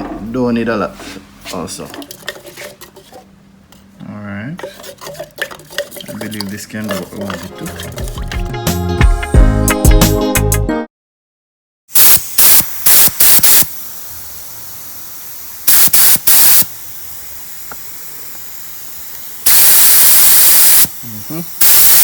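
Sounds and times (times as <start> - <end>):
faint hiss of air: 12.0 - 21.9
spray gun spraying: 12.0 - 22.0.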